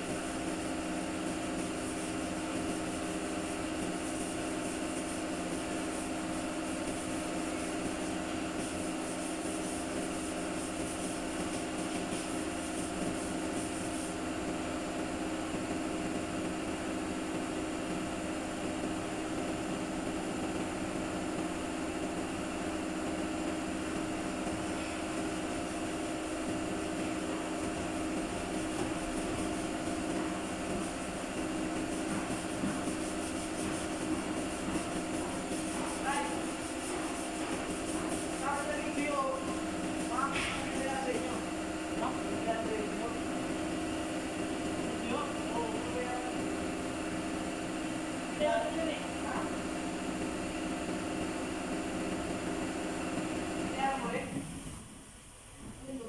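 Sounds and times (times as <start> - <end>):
workshop machine humming: 0.0 - 56.0.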